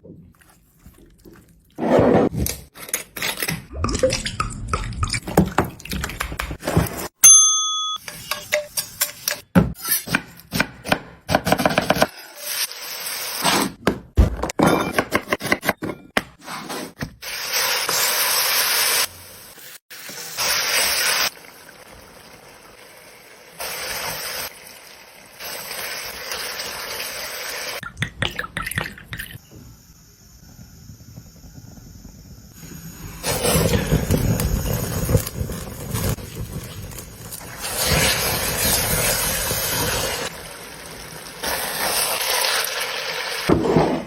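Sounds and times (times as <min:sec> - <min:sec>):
kitchen scrapes and knocks: 0:05.3 - 0:07.2, 0:13.4 - 0:17.3, 0:43.5 - 0:44.0.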